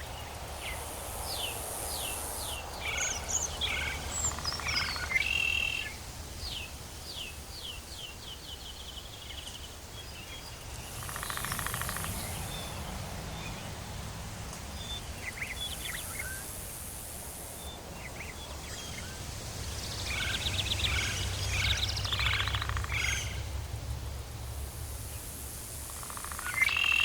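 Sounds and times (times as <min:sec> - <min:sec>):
birds chirping and calling: 0:00.6 - 0:06.6, 0:10.2 - 0:13.7, 0:19.8 - 0:23.6.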